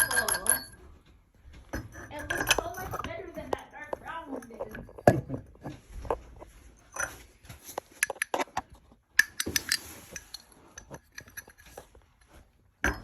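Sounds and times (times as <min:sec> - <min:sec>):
small hard objects clinking: 0:00.0 - 0:00.9, 0:01.6 - 0:05.6.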